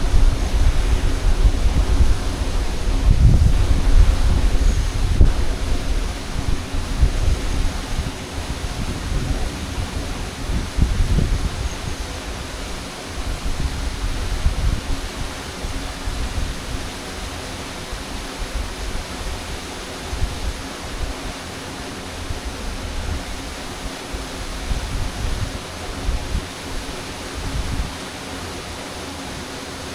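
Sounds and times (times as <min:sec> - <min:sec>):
waterfall rushing: 0:00.0 - 0:29.9.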